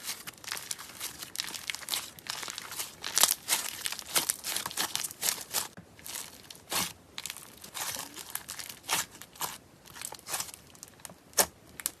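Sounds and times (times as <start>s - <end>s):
slime crackling and popping: 0.0s - 12.0s.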